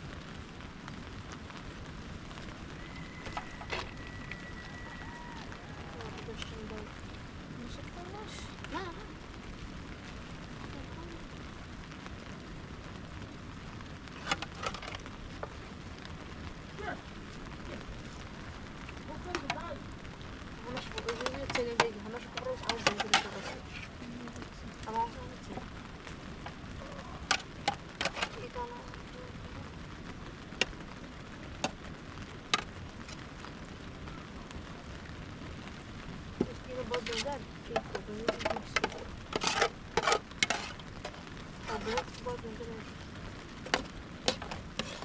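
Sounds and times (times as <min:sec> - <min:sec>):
rain falling: 0:00.0 - 0:45.0
wood fire crackling: 0:00.0 - 0:45.0.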